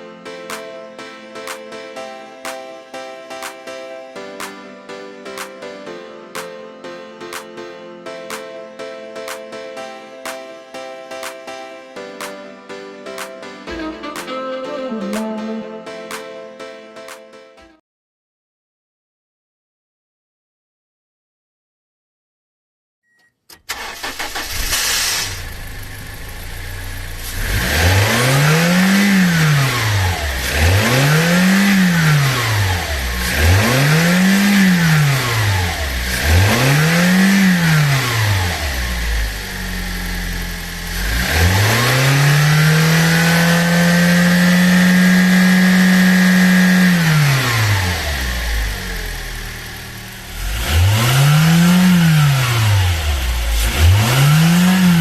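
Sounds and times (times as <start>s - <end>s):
car engine idling and revving: 23.7s - 55.0s.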